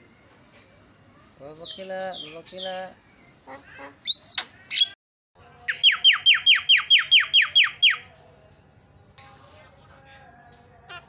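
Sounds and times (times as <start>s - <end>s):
bird whistles and chattering: 3.5s - 5.0s, 5.7s - 8.0s.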